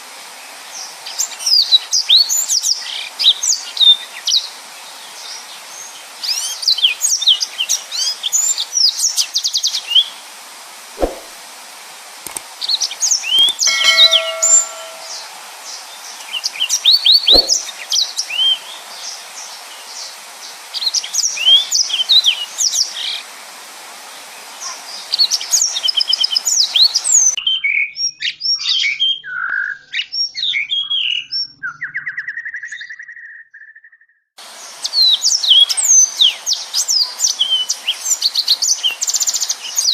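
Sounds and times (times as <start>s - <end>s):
background hiss: 17.3s - 27.3s.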